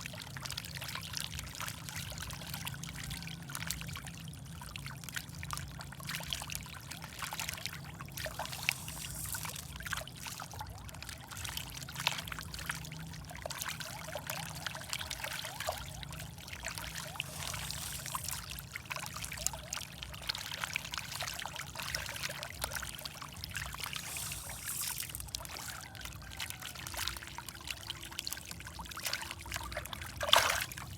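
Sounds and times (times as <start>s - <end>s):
fish splashing and slurping: 0.0s - 30.9s
water trickling: 0.0s - 30.9s
steady low hum: 4.4s - 10.7s, 14.5s - 25.6s.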